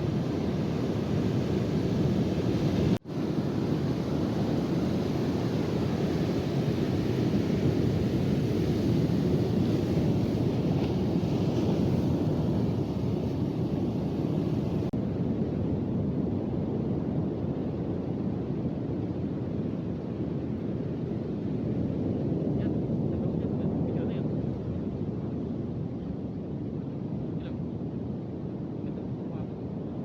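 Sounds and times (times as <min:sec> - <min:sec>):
ocean surf rushing: 0:00.0 - 0:15.0
wind buffeting microphone: 0:00.0 - 0:30.0.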